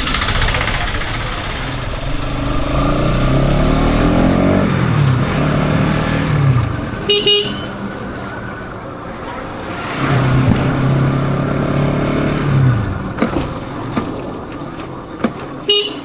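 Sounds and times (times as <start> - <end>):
motorcycle engine accelerating: 0.0 - 14.0
horn honk: 7.0 - 8.0, 15.7 - 16.0.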